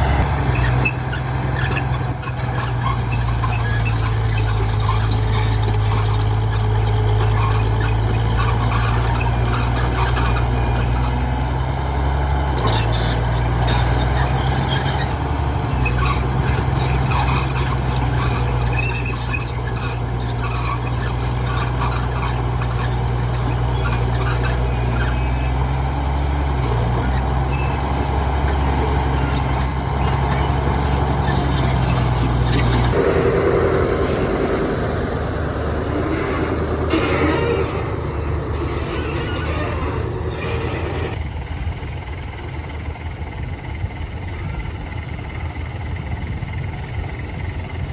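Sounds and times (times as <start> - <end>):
short high squeals and clicks: 0.0 - 41.2
diesel machinery running: 0.0 - 47.9
higher mechanical sound: 27.1 - 41.2.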